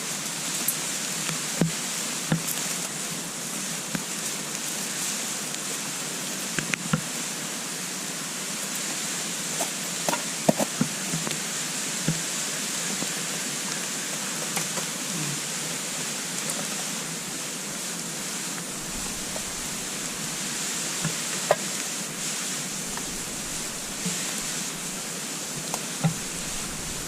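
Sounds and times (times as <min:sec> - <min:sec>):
wood fire crackling in stove: 0:16.0 - 0:27.0.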